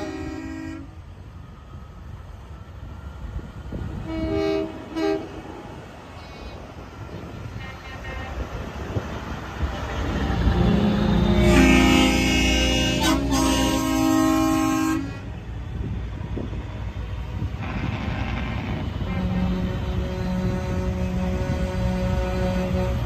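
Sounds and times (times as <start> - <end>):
air horn toots: 0.0 - 1.0, 4.0 - 5.6, 10.4 - 15.3, 17.6 - 23.0
low engine rumble: 0.0 - 23.0.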